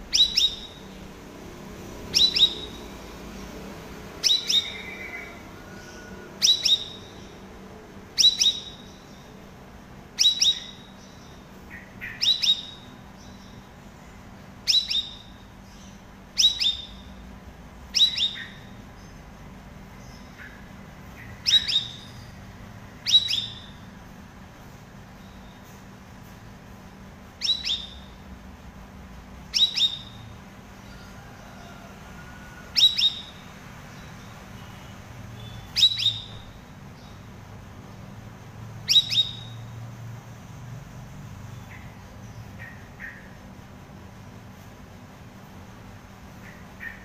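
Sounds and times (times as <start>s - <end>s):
bird calling in high chirps: 0.0s - 1.0s, 2.0s - 3.5s, 4.2s - 7.4s, 8.1s - 9.4s, 10.2s - 13.6s, 14.6s - 17.2s, 17.9s - 18.8s, 20.0s - 22.4s, 23.0s - 23.9s, 27.4s - 28.2s, 29.4s - 30.3s, 32.7s - 37.2s, 38.8s - 39.7s, 41.5s - 43.4s, 46.4s - 47.0s.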